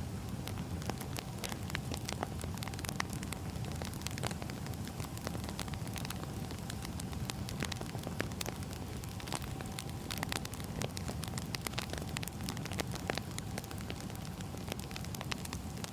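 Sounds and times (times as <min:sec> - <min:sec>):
burning logs crackling and popping: 0:00.0 - 0:15.9
fire low rumble: 0:00.0 - 0:15.9.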